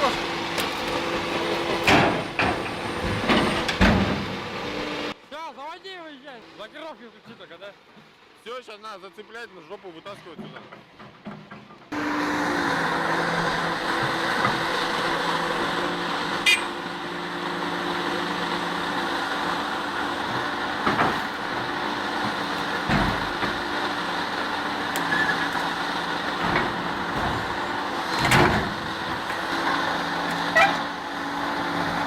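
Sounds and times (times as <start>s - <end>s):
knocks and clanks: 0.0s - 4.7s, 10.1s - 12.0s, 20.2s - 23.8s, 25.0s - 30.9s
diesel engine running: 0.0s - 32.0s.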